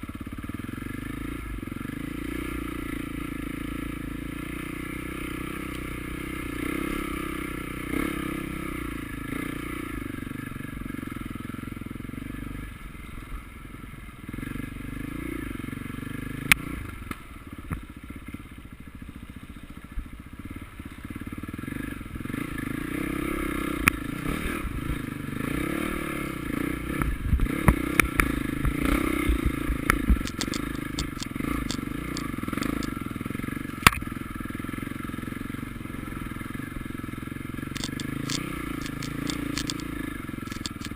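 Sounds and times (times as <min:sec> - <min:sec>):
motorcycle engines revving: 0:21.0 - 0:40.9
clatter: 0:29.3 - 0:33.1, 0:37.6 - 0:40.9.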